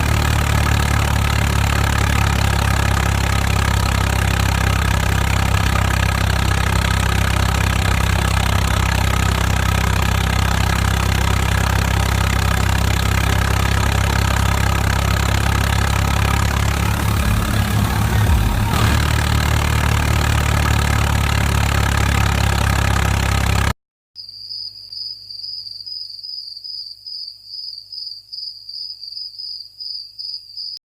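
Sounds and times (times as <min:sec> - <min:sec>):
tractor engine running: 0:00.0 - 0:23.8.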